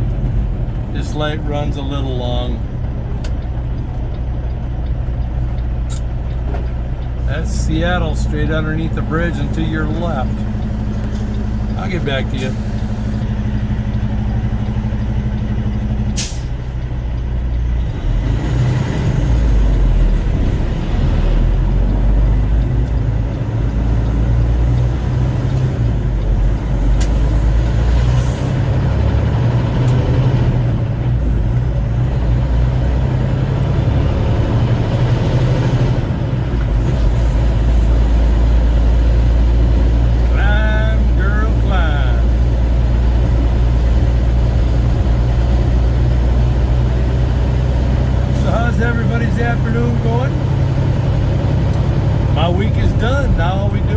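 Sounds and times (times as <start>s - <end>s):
diesel truck engine: 0.0s - 53.9s
road noise: 0.0s - 53.9s.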